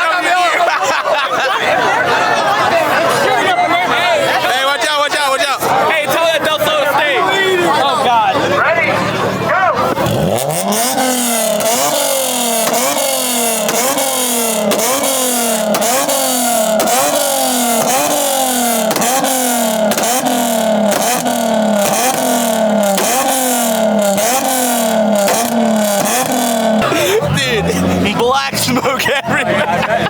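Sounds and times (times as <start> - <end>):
car engine revving hard: 9.8 - 30.0
exhaust pops crackling: 9.9 - 28.9.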